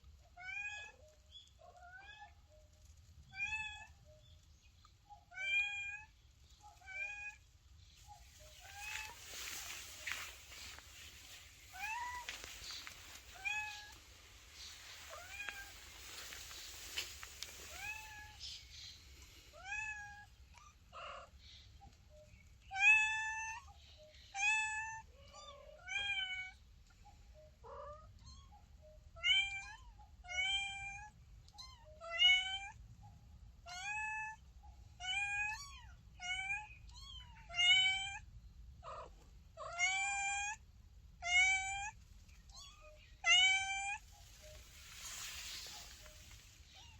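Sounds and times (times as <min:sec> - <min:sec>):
kitten meowing: 0:11.8 - 0:12.3, 0:13.2 - 0:14.0.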